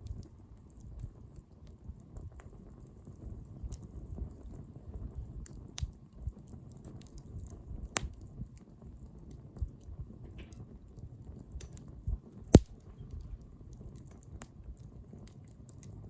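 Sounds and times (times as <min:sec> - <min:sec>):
bonfire flames rumbling: 0:00.0 - 0:16.0
fire crackles and pops: 0:00.0 - 0:16.0.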